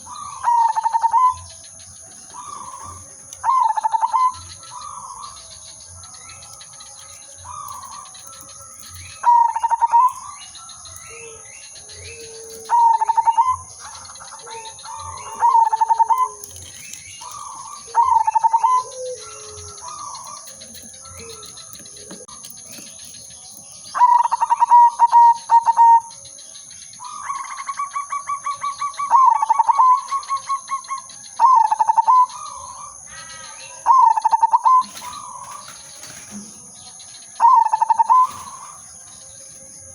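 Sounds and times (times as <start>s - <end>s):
dove cooing phrase: 0.0s - 1.5s, 12.2s - 16.6s, 17.2s - 22.4s
softer lower dove coos: 12.2s - 22.4s.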